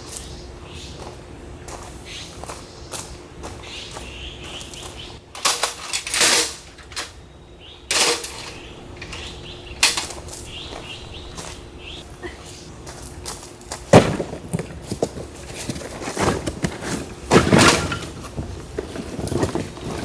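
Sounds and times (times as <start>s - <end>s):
faint steady hum: 0.0s - 20.0s
rustling and clattering handling: 4.8s - 7.2s, 7.9s - 11.6s, 13.2s - 20.0s.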